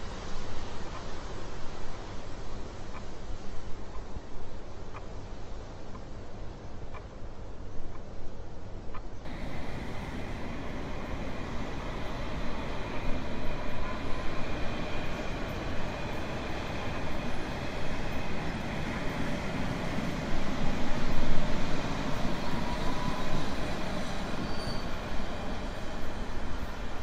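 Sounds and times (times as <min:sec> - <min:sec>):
train rumbling on rails: 0:08.7 - 0:27.0
faint wheel squeals: 0:24.1 - 0:25.1.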